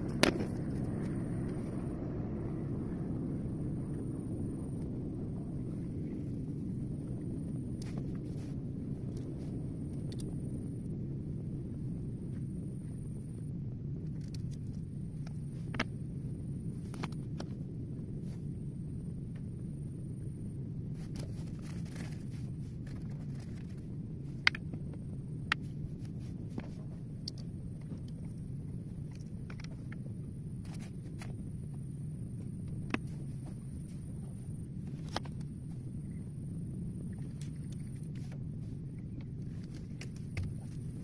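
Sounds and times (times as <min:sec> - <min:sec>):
steady low rumble: 0:00.0 - 0:41.0.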